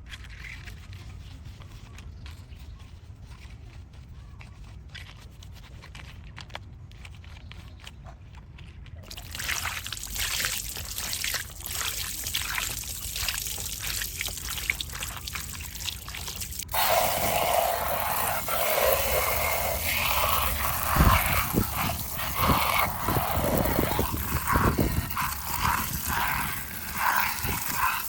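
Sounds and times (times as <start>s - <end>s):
water trickling and splashing: 9.0s - 28.0s.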